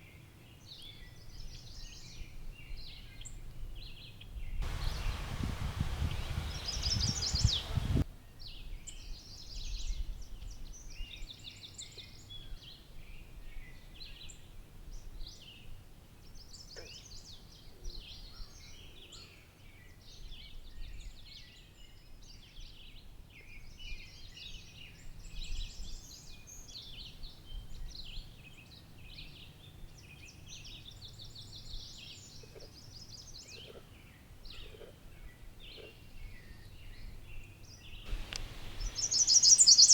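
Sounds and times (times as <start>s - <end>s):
songbirds chirping and trilling: 0.6s - 8.0s, 16.5s - 39.9s.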